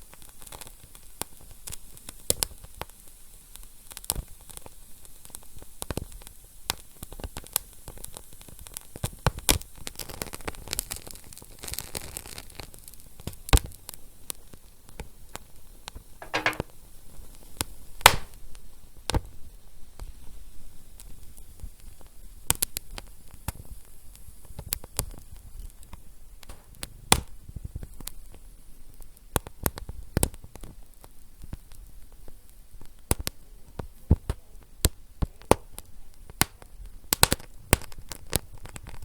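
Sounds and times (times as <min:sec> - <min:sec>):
wood fire crackling: 0:18.0 - 0:18.4.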